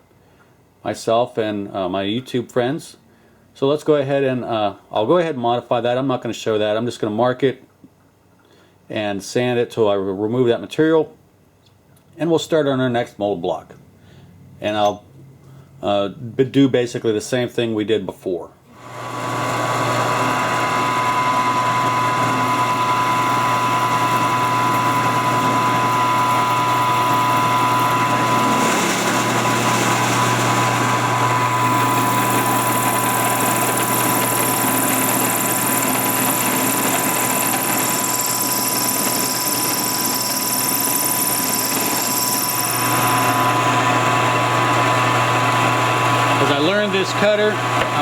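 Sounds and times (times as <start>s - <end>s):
milling machine motor hum: 18.8s - 48.0s.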